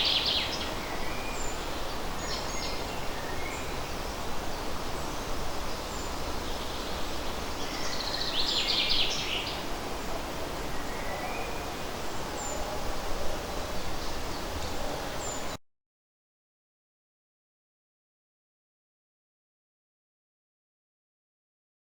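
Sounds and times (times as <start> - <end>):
birds singing: 0.0 - 15.6
leaves rustling in breeze: 0.0 - 15.6.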